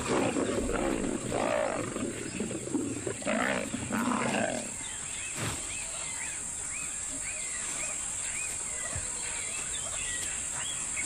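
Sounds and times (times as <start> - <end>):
lions snarling and growling: 0.0 - 4.8.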